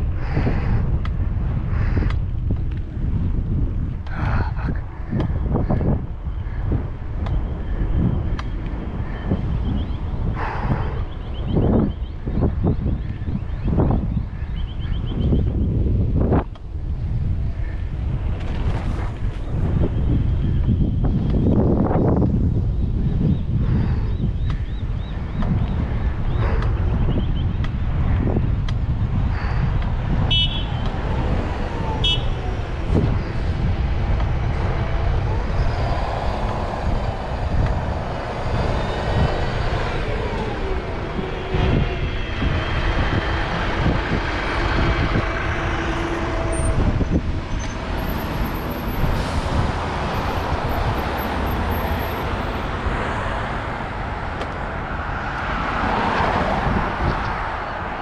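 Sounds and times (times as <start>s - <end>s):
road traffic passing: 0.0s - 58.0s
wind buffeting microphone: 0.0s - 58.0s
vehicle engine passing by: 30.9s - 58.0s.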